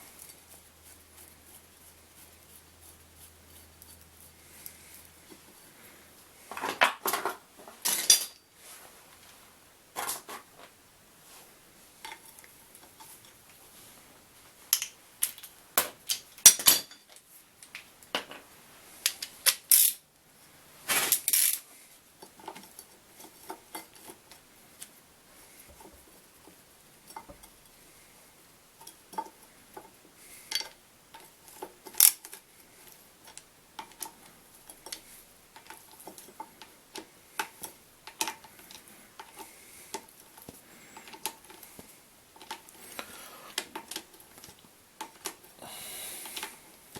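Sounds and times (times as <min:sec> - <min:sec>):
hand tools clinking on metal: 0:06.6 - 0:08.5.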